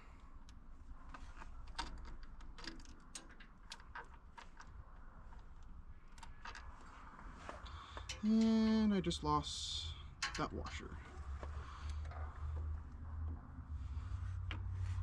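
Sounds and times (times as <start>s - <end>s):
hand tools clicking and tapping: 10.2s - 10.8s.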